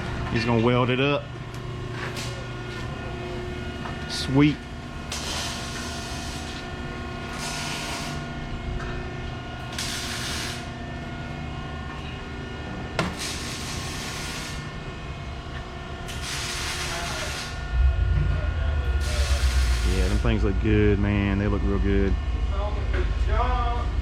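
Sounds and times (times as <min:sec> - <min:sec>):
arc welder hissing: 0:09.7 - 0:10.6, 0:13.2 - 0:14.6, 0:16.1 - 0:17.5
loud low rumble: 0:17.6 - 0:24.0.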